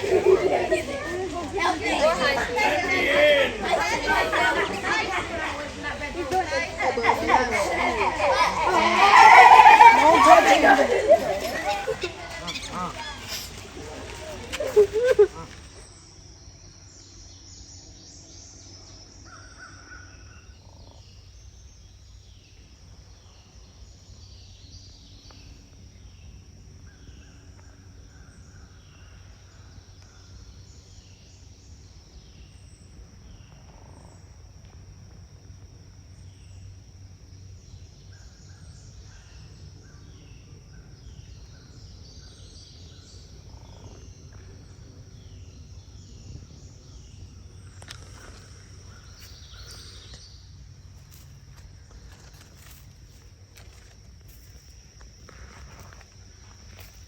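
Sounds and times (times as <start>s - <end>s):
birds chirping: 0.0s - 16.0s
buzzy bird calls: 0.0s - 16.0s.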